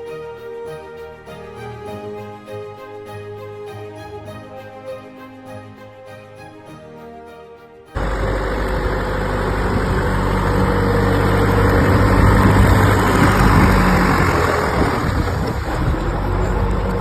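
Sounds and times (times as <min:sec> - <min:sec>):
vehicle engine running: 0:08.0 - 0:17.0.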